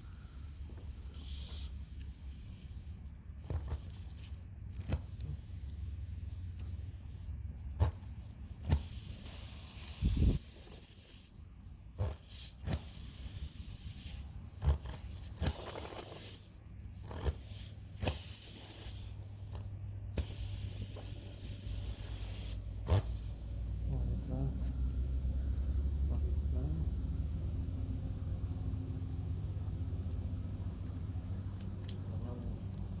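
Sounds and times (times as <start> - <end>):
air hissing from tire: 0.0 - 3.0, 8.6 - 11.4, 12.0 - 14.3, 15.4 - 16.6, 17.2 - 19.6, 20.2 - 23.9.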